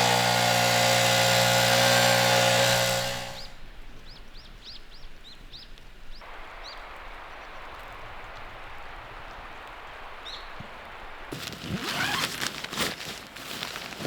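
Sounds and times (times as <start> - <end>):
steady outdoor hiss: 0.0 - 12.2
songbirds chirping: 3.3 - 8.9.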